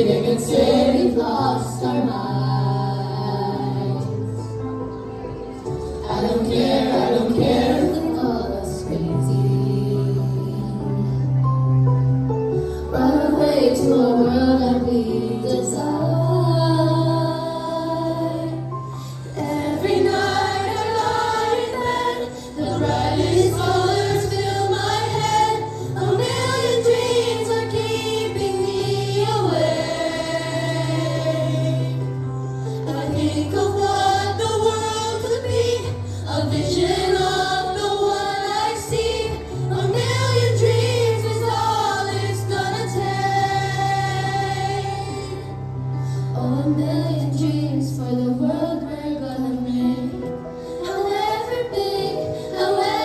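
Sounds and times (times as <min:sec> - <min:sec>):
children singing in unison: 0:00.0 - 0:03.8, 0:06.0 - 0:09.0, 0:19.4 - 0:32.2, 0:32.8 - 0:45.5, 0:50.8 - 0:53.0.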